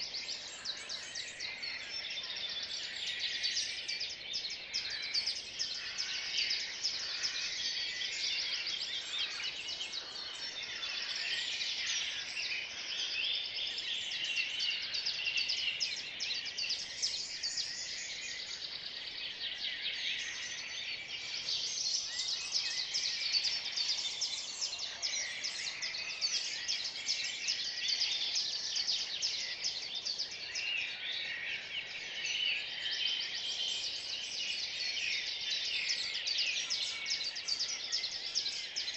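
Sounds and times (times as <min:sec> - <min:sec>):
songbirds chorus: 0:00.0 - 0:38.9.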